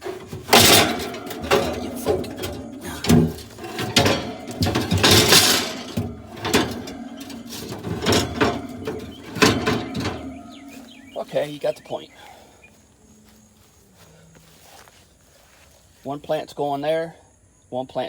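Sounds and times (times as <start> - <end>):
objects knocking and rattling: 0.0 - 11.8.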